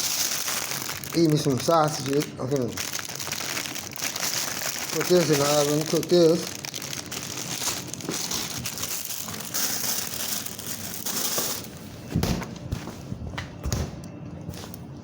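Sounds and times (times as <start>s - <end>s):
food packaging crinkling: 0.0s - 11.7s.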